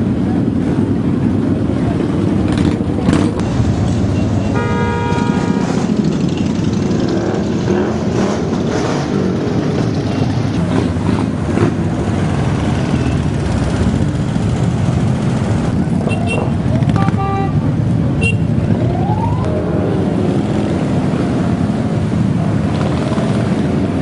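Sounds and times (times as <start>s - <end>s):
motorcycle engines rumbling: 0.0s - 24.0s
vehicle horn: 4.2s - 5.9s, 16.0s - 18.5s.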